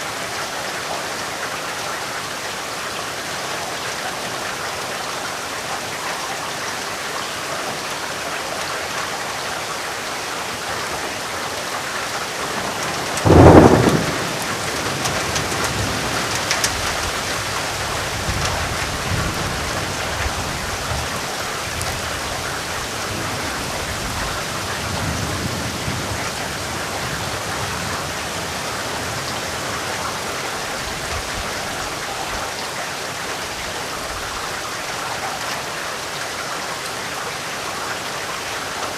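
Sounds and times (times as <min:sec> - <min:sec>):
heavy rain: 0:00.0 - 0:38.9
low rumble of thunder: 0:12.4 - 0:22.3, 0:23.0 - 0:30.0
loud thunderclap: 0:12.5 - 0:17.1.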